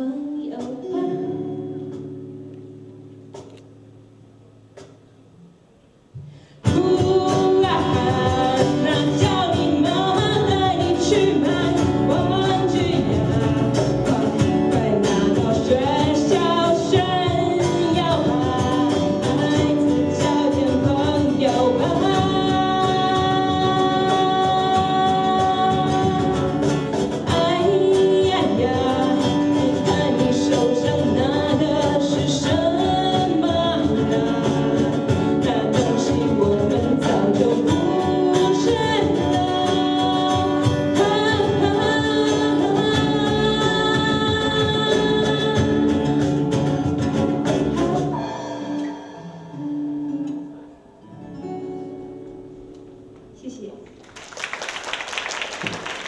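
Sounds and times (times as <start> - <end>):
live rock band playing: 7.1 - 49.4.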